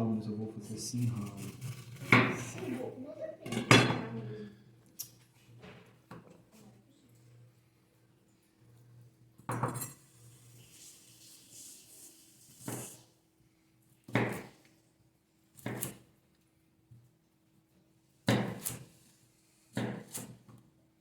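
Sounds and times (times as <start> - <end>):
dishes and utensils clattering: 3.4 - 4.3.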